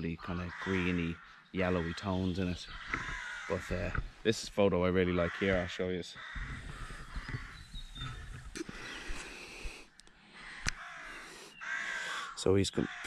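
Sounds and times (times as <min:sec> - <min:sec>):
birds cawing: 0:00.0 - 0:13.0
sharp clicks: 0:02.9 - 0:04.1, 0:08.3 - 0:10.8.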